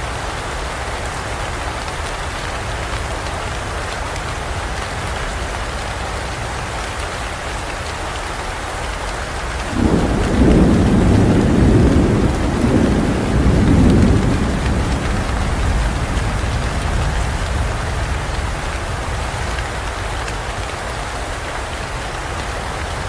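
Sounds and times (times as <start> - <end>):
heavy rain falling: 0.0 - 23.0
thunder rumbling: 9.7 - 20.7.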